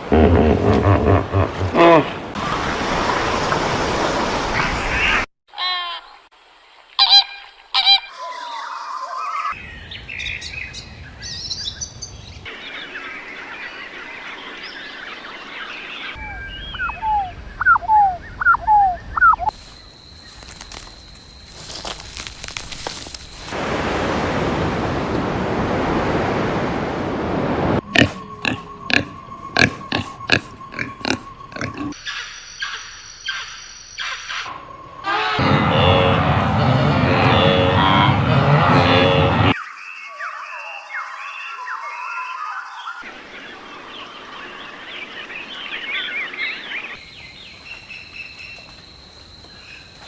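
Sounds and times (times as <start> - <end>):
rushing noise: 35.4 - 39.6.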